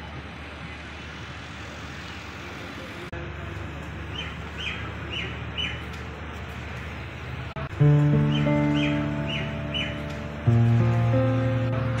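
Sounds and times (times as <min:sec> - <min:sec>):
distant traffic rumble: 0:00.0 - 0:12.0
small bird chirping: 0:08.3 - 0:10.0.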